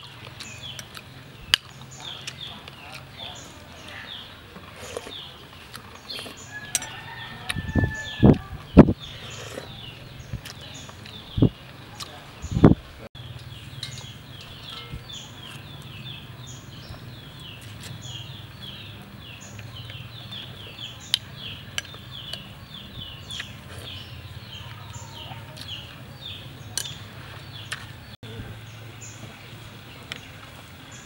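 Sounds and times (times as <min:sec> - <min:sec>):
bird chirping: 0:00.0 - 0:31.0
utensils clinking on ceramic bowl: 0:13.8 - 0:15.2.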